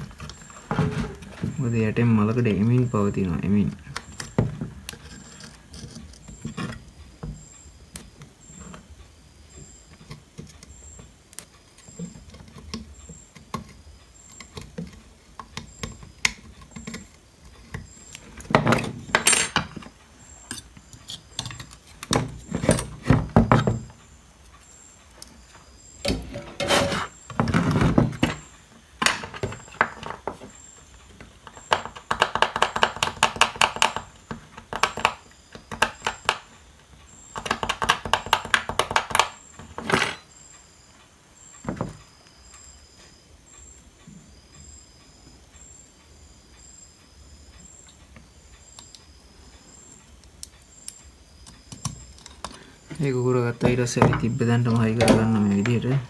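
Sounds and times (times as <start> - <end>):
hand tools scraping circuit board: 0.0 - 7.0, 26.0 - 28.5, 37.4 - 40.2.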